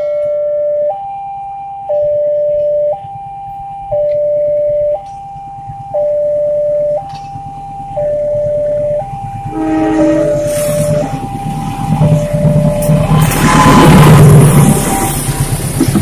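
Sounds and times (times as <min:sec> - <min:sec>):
level crossing alarm: 0:00.0 - 0:15.6
train rumble: 0:01.9 - 0:16.0
locomotive horn: 0:09.5 - 0:11.3, 0:13.1 - 0:15.4.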